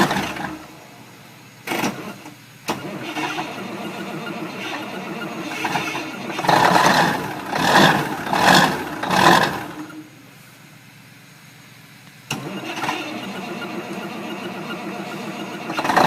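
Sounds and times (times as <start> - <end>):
diesel engine revving: 0.0 - 10.5, 12.3 - 16.0.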